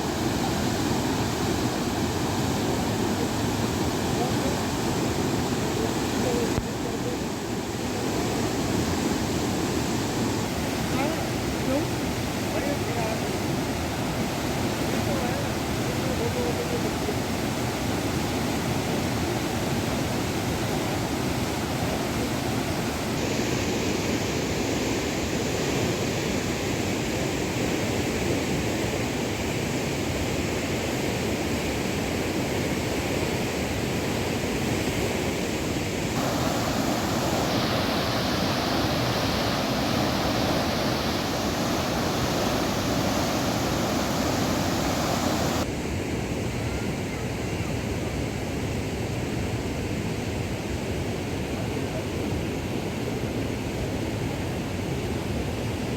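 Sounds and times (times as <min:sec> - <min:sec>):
river water rushing: 0:00.0 - 0:45.7.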